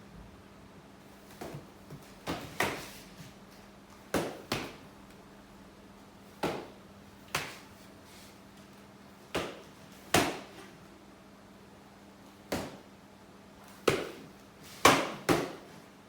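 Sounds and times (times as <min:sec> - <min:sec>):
foam noodles slapping forearms: 0:01.3 - 0:03.0, 0:04.1 - 0:04.9, 0:06.3 - 0:07.9, 0:09.3 - 0:10.7, 0:12.4 - 0:12.9, 0:13.7 - 0:15.8.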